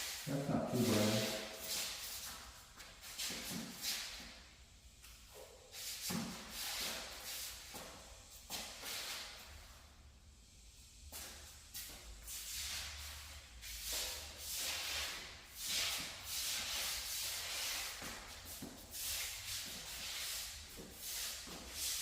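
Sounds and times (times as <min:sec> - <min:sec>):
rubbing rustling noise: 0:00.0 - 0:04.4.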